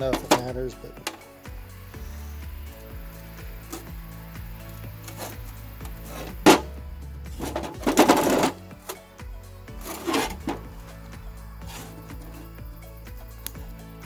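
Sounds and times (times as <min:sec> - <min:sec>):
rattling scrapes: 0:00.0 - 0:01.2, 0:05.0 - 0:09.1, 0:09.7 - 0:12.9
background music: 0:00.0 - 0:14.0.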